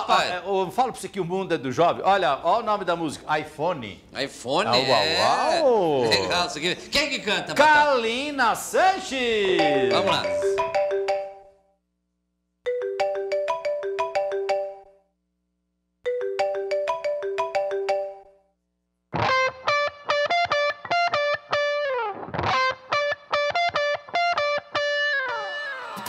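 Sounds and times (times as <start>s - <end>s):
quick plucked notes melody: 9.5s - 11.4s
band with distorted electric guitar: 19.2s - 26.0s.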